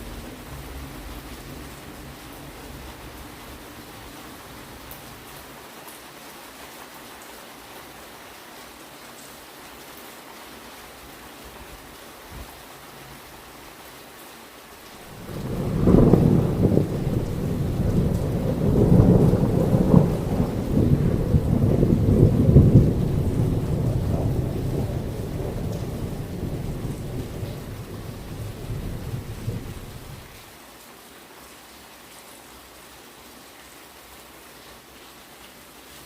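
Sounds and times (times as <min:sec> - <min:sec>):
heavy rain: 0:00.0 - 0:36.0
distant thunder rumbling: 0:15.1 - 0:30.3.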